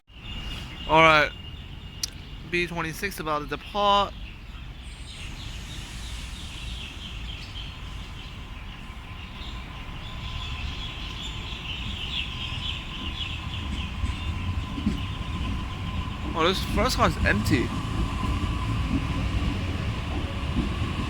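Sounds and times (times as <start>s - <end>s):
electric train rumble: 4.2s - 21.0s
high chattering warble: 16.2s - 18.8s.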